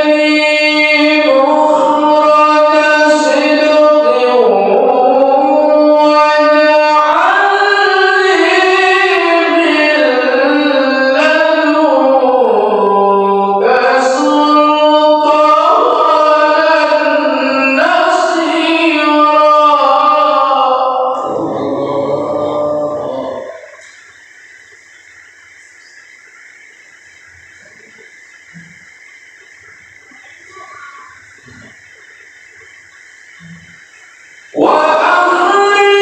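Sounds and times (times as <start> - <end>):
man reciting melodically: 0.0 - 23.8, 33.4 - 36.0.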